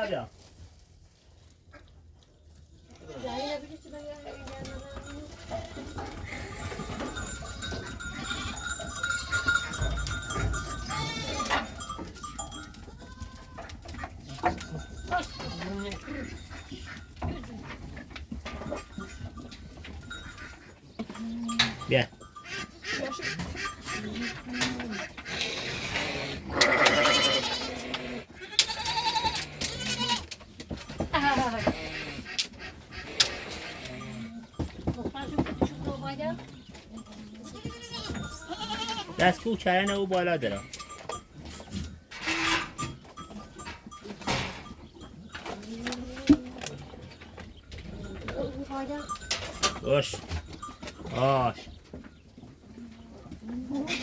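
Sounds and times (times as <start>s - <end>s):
livestock bleating: 6.2s - 7.2s, 8.0s - 12.0s, 12.9s - 13.7s, 14.3s - 17.0s, 22.4s - 30.3s, 37.2s - 39.3s.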